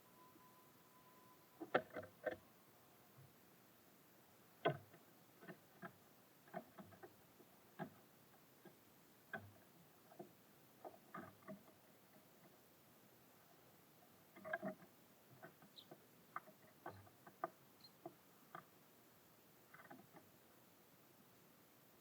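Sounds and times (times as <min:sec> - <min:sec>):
birds pecking on a feeder: 0:01.6 - 0:02.4, 0:04.6 - 0:20.7.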